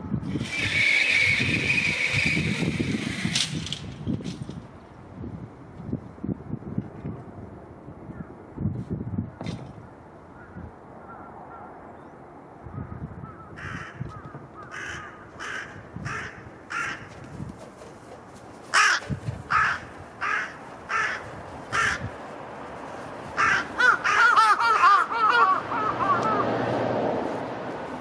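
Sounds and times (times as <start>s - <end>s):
wind rumble: 0.0s - 28.0s
crows cawing: 13.3s - 17.2s, 18.7s - 22.1s, 23.4s - 26.6s
low surf: 19.8s - 28.0s.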